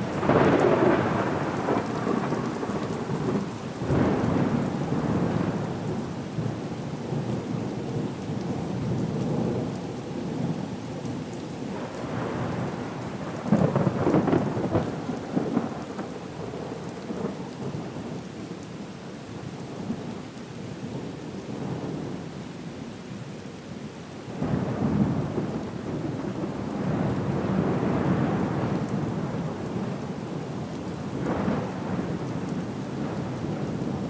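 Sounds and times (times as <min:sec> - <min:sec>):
rolling thunder rumbles: 0:00.0 - 0:06.0, 0:11.8 - 0:17.4, 0:31.1 - 0:34.0
steady rain: 0:00.0 - 0:34.0.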